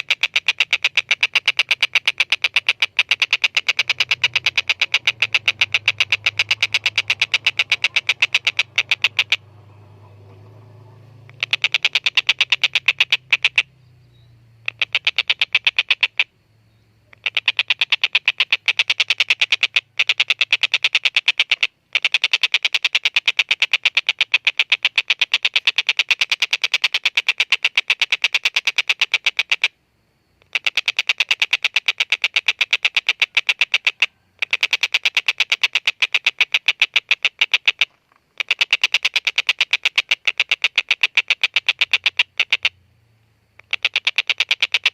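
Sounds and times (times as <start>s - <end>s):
kingfisher harsh rapid calls: 0.0s - 10.6s, 11.2s - 13.7s.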